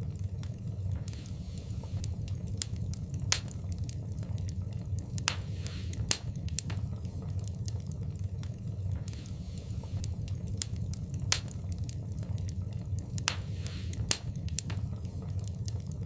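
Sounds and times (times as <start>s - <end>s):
burning logs crackling and popping: 0.0s - 16.0s
low rumble of flames: 0.0s - 16.0s.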